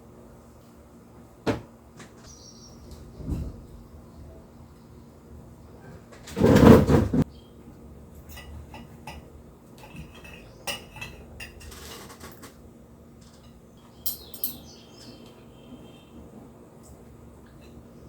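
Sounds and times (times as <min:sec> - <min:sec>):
dishes and cutlery rattling: 0:08.2 - 0:12.6, 0:13.2 - 0:14.7
clinks and taps: 0:13.2 - 0:15.1.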